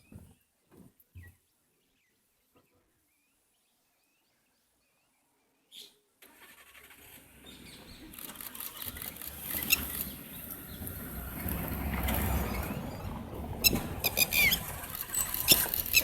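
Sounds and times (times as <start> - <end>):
vehicle engine starting and running: 6.2 - 16.0.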